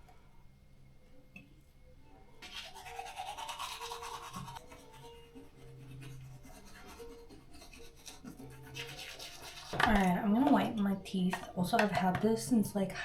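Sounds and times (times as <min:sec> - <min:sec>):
toothbrush scrubbing teeth: 0:02.4 - 0:10.1.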